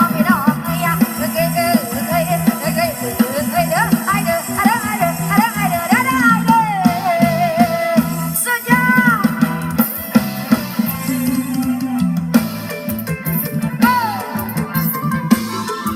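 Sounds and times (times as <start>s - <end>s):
song over loudspeakers: 0.0s - 15.9s
person singing ornamented melody: 10.9s - 12.4s.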